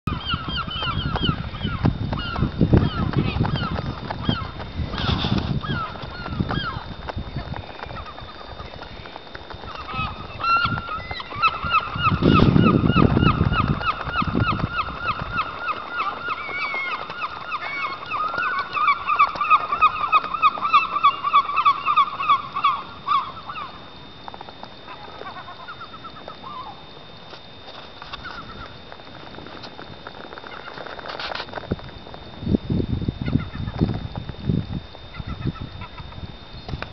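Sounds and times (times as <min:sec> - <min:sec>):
birds calling rapidly: 0:00.1 - 0:23.8.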